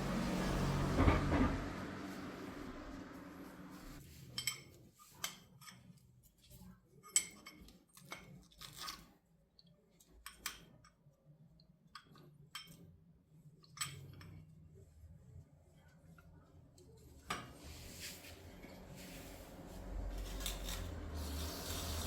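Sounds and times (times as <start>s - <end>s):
low steady hum: 0.0s - 4.0s.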